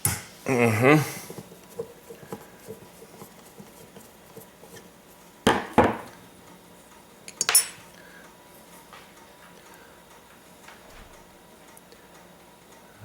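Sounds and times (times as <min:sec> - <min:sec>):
metal tools clinking on workbench: 0:07.3 - 0:07.8
metallic ring: 0:07.4 - 0:07.8.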